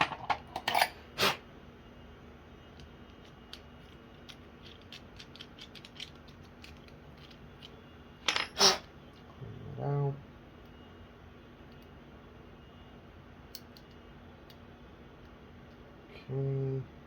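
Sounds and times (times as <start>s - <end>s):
small metal tools clicking: 3.2s - 7.7s.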